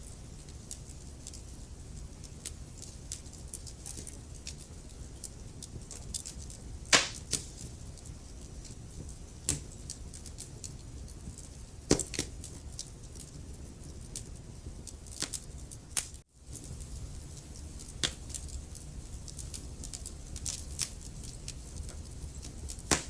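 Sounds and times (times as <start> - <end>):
wood fire crackling: 0.0 - 23.0
loud sharp log pops: 6.9 - 7.6.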